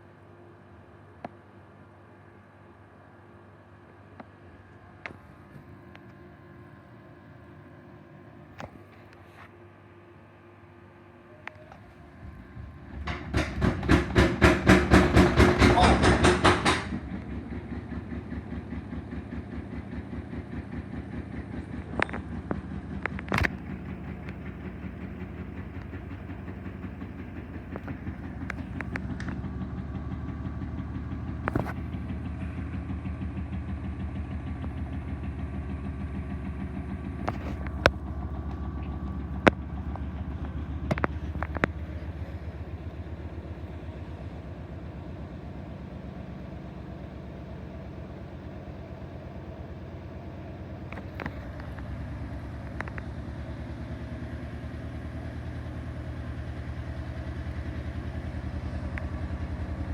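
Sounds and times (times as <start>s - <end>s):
washing machine spin hum: 0.0s - 59.9s
washing machine drum banging: 12.4s - 18.8s
sharp knocks: 12.9s - 17.2s.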